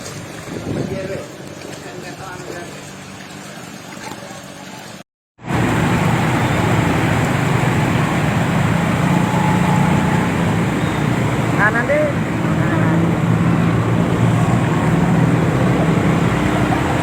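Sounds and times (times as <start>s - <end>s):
road and wind noise: 0.0s - 3.3s, 5.4s - 17.0s
vehicle engine drone: 5.4s - 17.0s.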